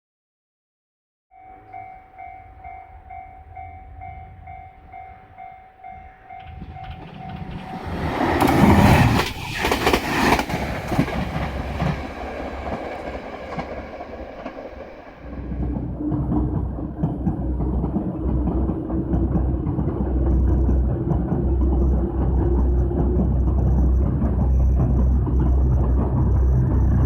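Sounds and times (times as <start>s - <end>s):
level crossing bell dinging: 1.3s - 7.6s
train passing with wheels clattering: 1.4s - 27.0s.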